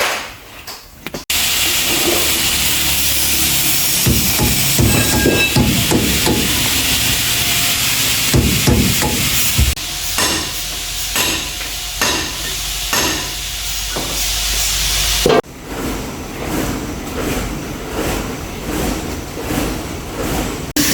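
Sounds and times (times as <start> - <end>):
hammer striking: 3.7 - 13.4.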